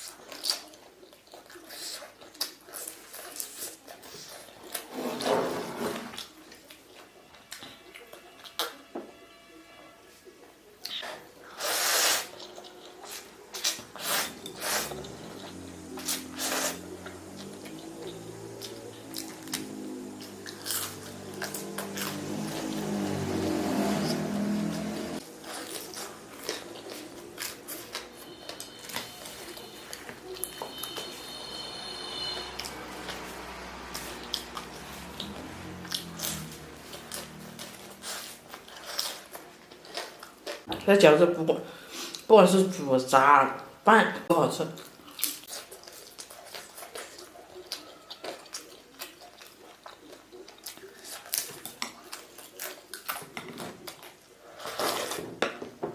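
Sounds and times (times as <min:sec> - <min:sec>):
person chewing food: 0:00.0 - 0:05.0, 0:10.7 - 0:40.8, 0:44.8 - 0:55.4
person eating noodles: 0:10.8 - 0:40.7.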